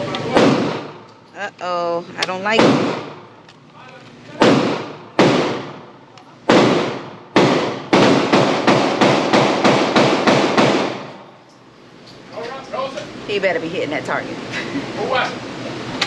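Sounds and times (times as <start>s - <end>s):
gunshots ringing indoors: 0.3s - 1.1s, 2.6s - 3.3s, 4.4s - 11.3s.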